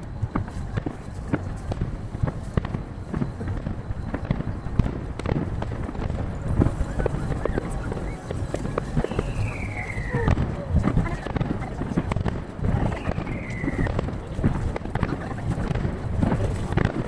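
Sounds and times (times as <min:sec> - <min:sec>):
fireworks booms: 0:00.0 - 0:17.0
fireworks cracks: 0:00.0 - 0:17.0
low rumble: 0:03.5 - 0:14.8.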